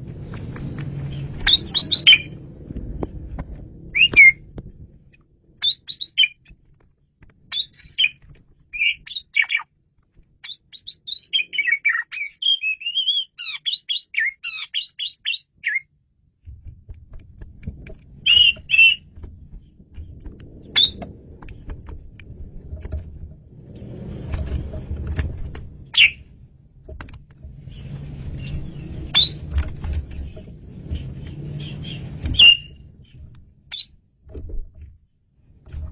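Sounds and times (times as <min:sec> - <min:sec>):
low rumble: 0:00.0 - 0:05.6, 0:16.2 - 0:35.9
starling singing whistled notes: 0:01.1 - 0:02.4, 0:03.9 - 0:04.4, 0:05.6 - 0:06.4, 0:07.5 - 0:09.7, 0:10.4 - 0:15.9, 0:18.3 - 0:19.1, 0:20.7 - 0:21.0, 0:26.0 - 0:26.2, 0:27.7 - 0:29.6, 0:31.4 - 0:32.9.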